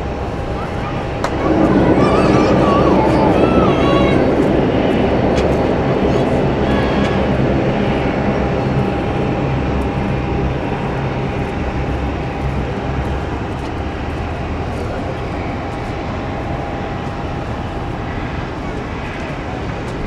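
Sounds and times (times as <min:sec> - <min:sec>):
jet engine whine: 0:00.0 - 0:20.0
jet engines rumbling: 0:00.0 - 0:20.0.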